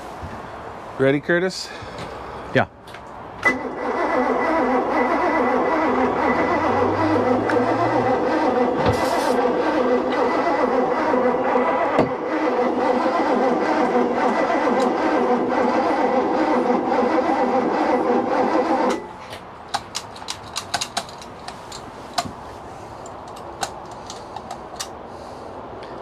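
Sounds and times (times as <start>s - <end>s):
engine cranking on starter: 3.4s - 19.2s.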